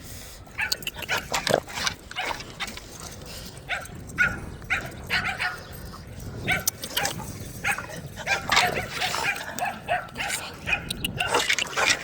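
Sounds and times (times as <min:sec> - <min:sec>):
dog barking: 0:03.7 - 0:05.6, 0:06.5 - 0:06.7, 0:07.6 - 0:11.4.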